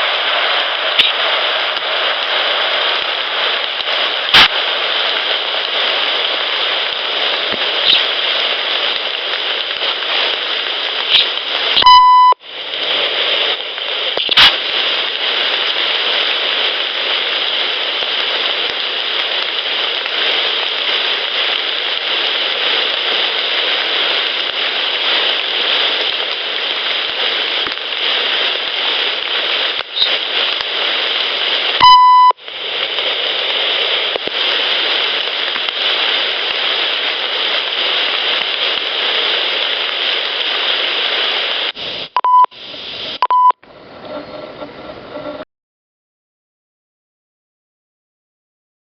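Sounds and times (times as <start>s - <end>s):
rain hissing: 0.0s - 45.4s
short electronic beeps: 11.8s - 12.4s, 31.8s - 32.4s, 42.2s - 42.5s, 43.2s - 43.6s
sharp click: 14.2s - 14.6s.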